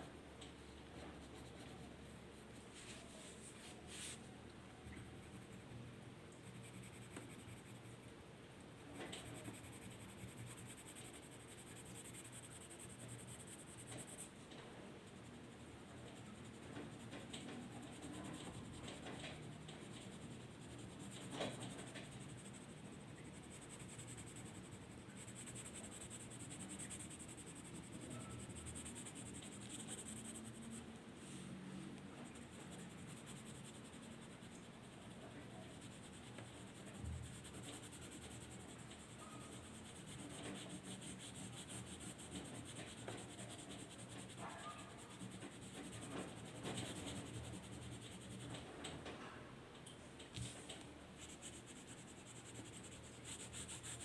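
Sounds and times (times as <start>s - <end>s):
drawing tool scratching paper: 16.0s - 30.8s, 35.7s - 48.5s, 51.2s - 54.0s.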